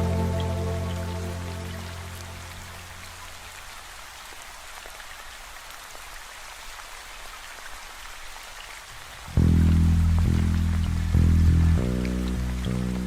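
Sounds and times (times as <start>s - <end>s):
song playing: 0.0s - 2.2s
steady rain hiss: 0.0s - 13.0s.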